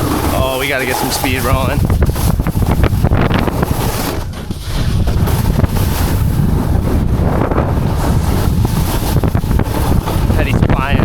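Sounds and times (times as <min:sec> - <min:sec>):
wind buffeting camera microphone: 0:00.0 - 0:11.0.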